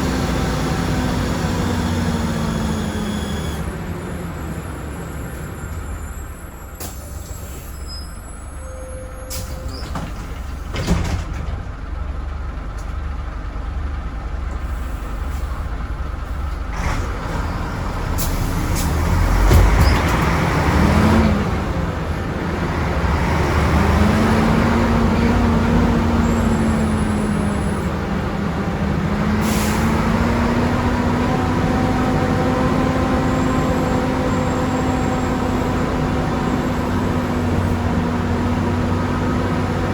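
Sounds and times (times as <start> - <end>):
bus diesel engine pulling away: 0.0 - 39.9
air brake hisses: 6.8 - 9.9, 14.6 - 15.7, 29.4 - 30.0.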